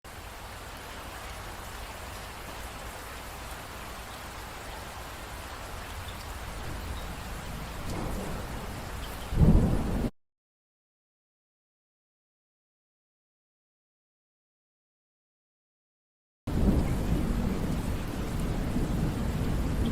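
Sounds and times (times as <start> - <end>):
steady rain falling: 0.1 - 10.1, 16.5 - 19.9
thunder rumbling: 6.5 - 10.1, 16.5 - 19.9
loud deep thunderclap: 6.7 - 10.1, 16.5 - 19.9.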